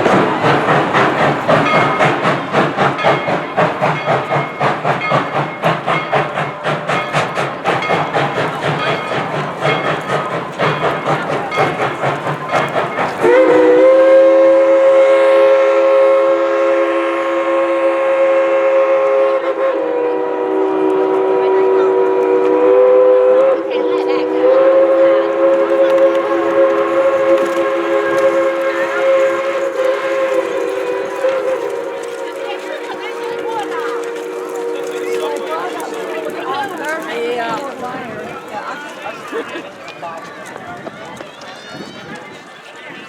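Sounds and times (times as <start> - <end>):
steam locomotive exhaust beats: 0.0 - 43.0
chime steam whistle: 3.0 - 23.6, 24.4 - 36.6.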